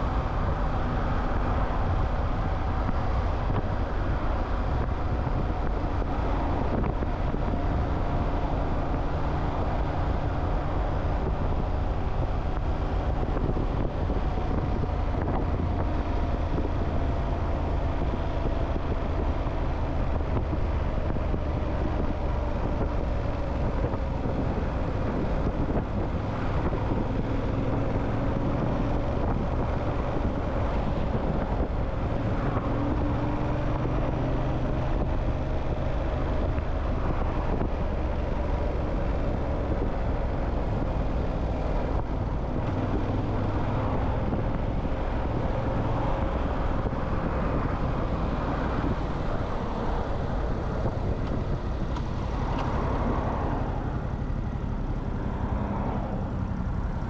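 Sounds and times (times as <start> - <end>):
motorcycle engine hum: 0.0 - 57.0
road noise: 0.0 - 57.0
wind noise: 0.0 - 57.0.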